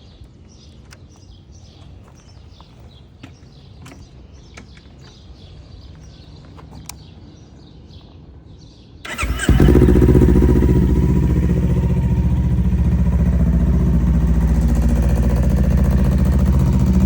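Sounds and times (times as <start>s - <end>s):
small birds chirping: 0.0s - 17.0s
low background rumble: 9.6s - 17.0s.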